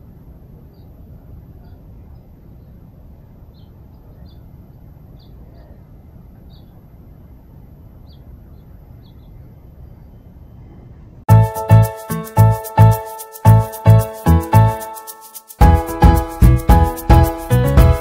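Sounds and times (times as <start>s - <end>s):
small birds chirping: 0.6s - 7.3s, 8.0s - 10.8s.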